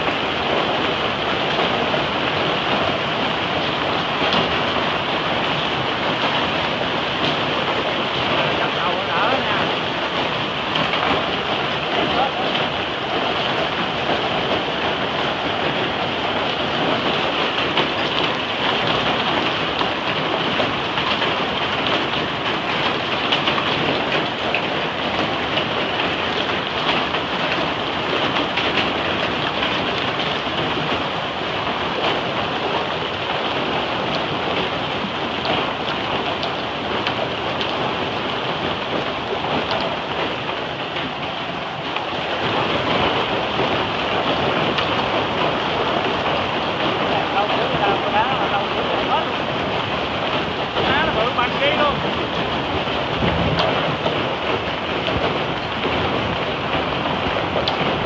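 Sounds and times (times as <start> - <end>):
hail and heavy rain on a car: 0.0 - 58.0.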